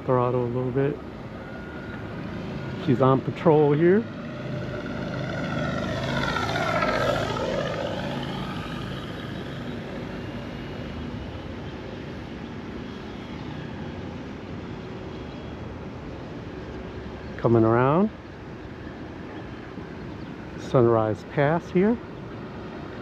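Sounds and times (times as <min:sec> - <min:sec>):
model plane motor and propeller: 0:00.2 - 0:15.8.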